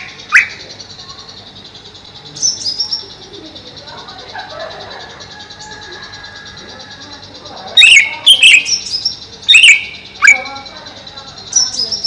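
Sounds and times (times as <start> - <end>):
high-pitched background hum: 0.0 - 12.0
bird whistling sharp notes: 7.8 - 10.5.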